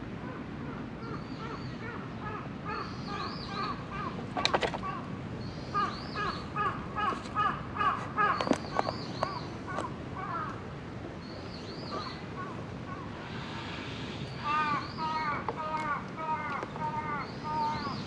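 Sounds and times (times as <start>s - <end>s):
birds giving harsh calls: 1.1s - 10.6s, 11.8s - 18.0s
higher arching bird call: 11.9s - 18.0s.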